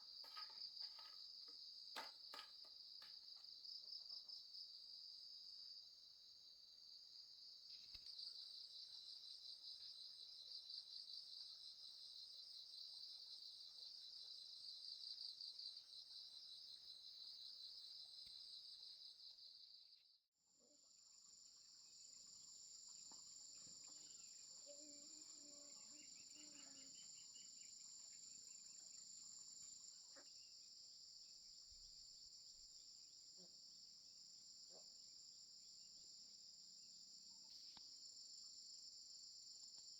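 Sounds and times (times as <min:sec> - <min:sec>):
insects trilling: 0:21.5 - 0:30.8.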